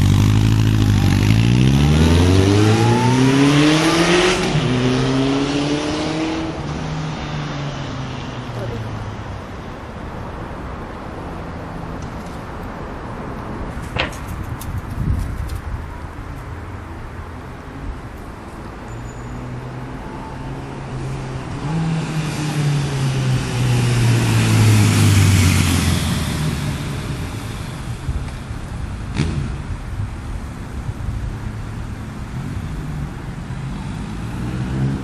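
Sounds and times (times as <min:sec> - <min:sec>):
motorcycle passing by: 0:00.0 - 0:08.7, 0:20.2 - 0:28.0, 0:29.1 - 0:29.7, 0:32.4 - 0:35.0.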